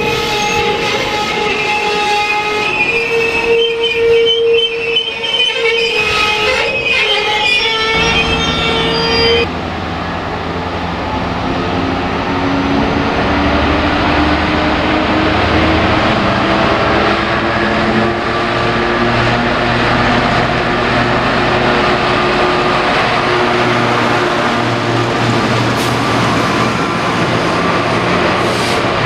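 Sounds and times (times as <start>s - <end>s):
high squeal: 0.0s - 16.8s, 22.9s - 29.0s
train engine running: 0.0s - 29.0s.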